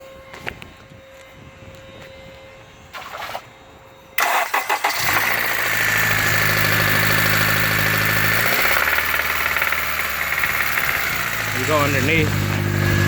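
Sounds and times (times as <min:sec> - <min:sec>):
engine starter cranking: 0:04.2 - 0:13.0
engine idling with rod knock: 0:08.0 - 0:13.0.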